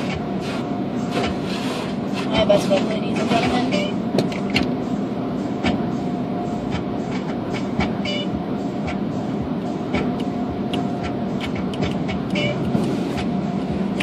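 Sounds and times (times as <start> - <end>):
car wash machinery and water rumble: 0.0 - 14.0
knocks and clicks: 4.2 - 4.7, 5.6 - 5.8, 6.7 - 8.2, 9.9 - 13.3.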